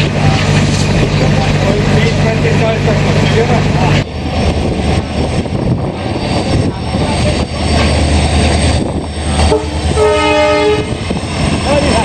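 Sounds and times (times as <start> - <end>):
train wheels rumbling: 0.0 - 12.0
wind on microphone: 4.0 - 12.0
train whistle held tone: 9.5 - 11.0.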